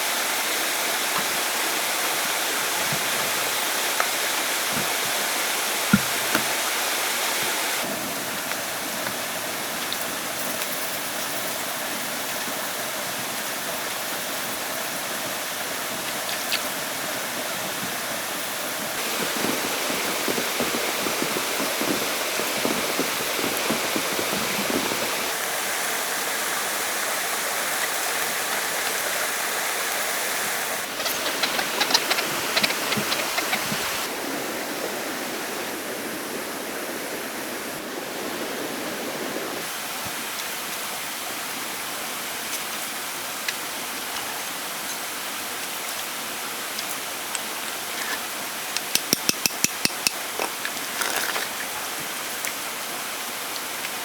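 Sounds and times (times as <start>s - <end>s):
flowing water rushing: 0.0s - 54.0s
sharp knocks and clicks: 48.8s - 50.5s.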